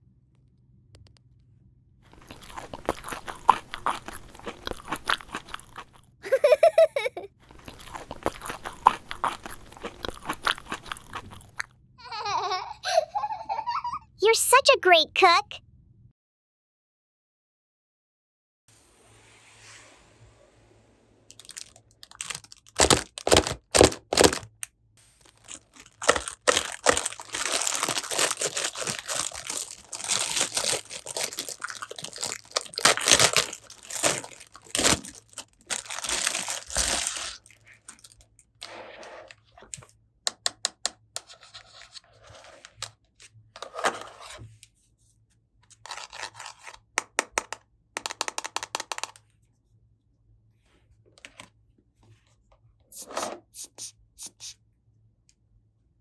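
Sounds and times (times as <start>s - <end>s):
packaging tearing and crinkling: 2.2s - 6.0s, 7.5s - 11.6s, 21.3s - 24.6s, 25.2s - 38.2s, 45.9s - 46.8s
plastic pieces clicking: 21.4s - 24.6s, 25.4s - 35.2s, 45.9s - 49.2s.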